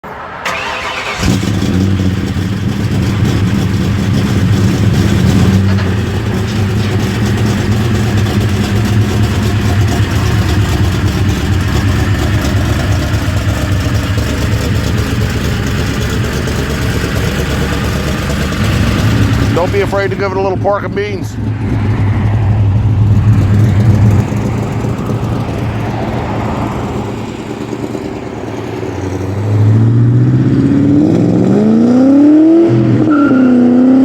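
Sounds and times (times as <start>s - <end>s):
engine starter cranking: 0.4s - 20.4s
car engine idling: 0.4s - 30.9s.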